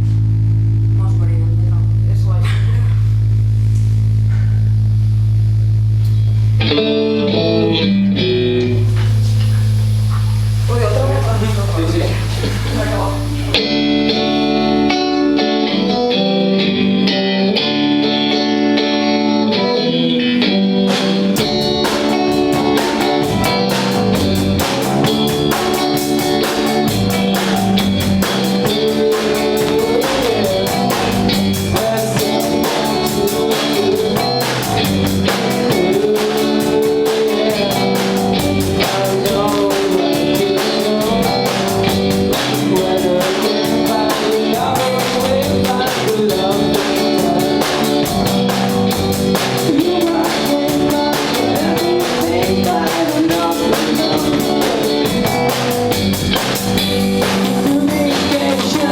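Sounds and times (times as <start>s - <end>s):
guitar riff: 0.0s - 58.9s
rock band playing: 6.2s - 58.9s
drum kit: 8.3s - 15.6s, 20.5s - 58.9s.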